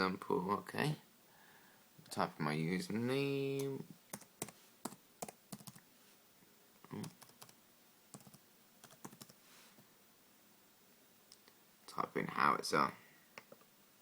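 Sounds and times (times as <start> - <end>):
laptop keyboard typing: 3.6 - 5.8, 7.0 - 9.4.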